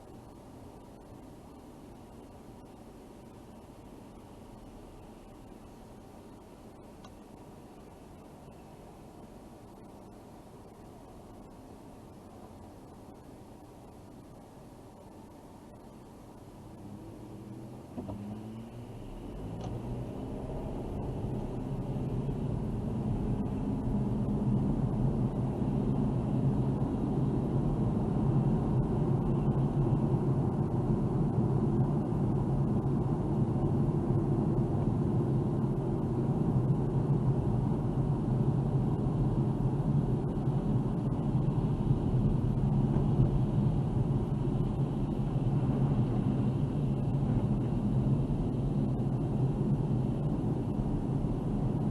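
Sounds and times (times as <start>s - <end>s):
road noise: 0.0s - 51.9s
car engine accelerating: 16.6s - 51.9s.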